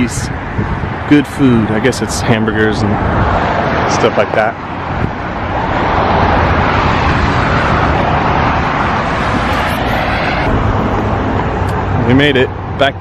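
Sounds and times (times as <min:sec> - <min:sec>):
vehicle passing close by: 0:02.9 - 0:12.7.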